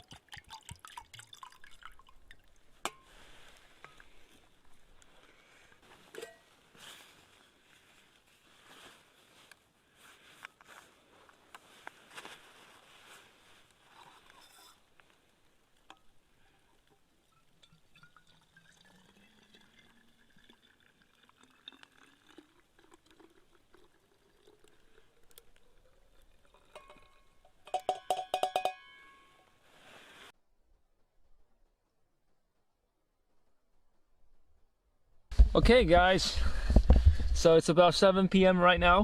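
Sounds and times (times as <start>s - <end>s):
water pouring into a bottle: 0.0s - 2.8s, 16.8s - 27.4s
ringing metallic clinks: 27.7s - 29.5s.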